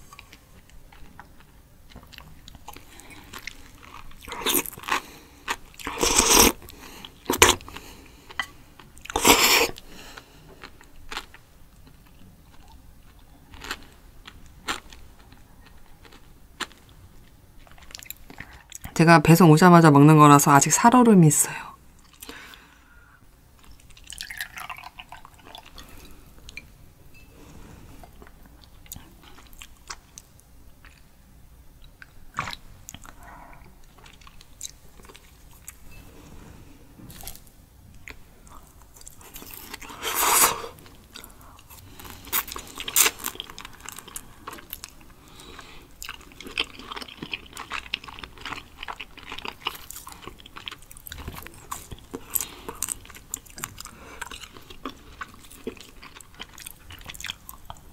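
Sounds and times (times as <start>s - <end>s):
wet chewing and crunching: 0.0s - 18.9s, 23.6s - 26.6s, 31.8s - 35.8s, 37.1s - 57.9s
liquid pouring into glass: 24.1s - 25.6s.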